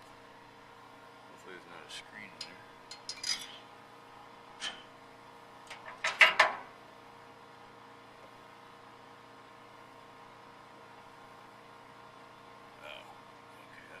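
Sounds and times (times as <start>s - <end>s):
faint hum: 6.6s - 14.0s.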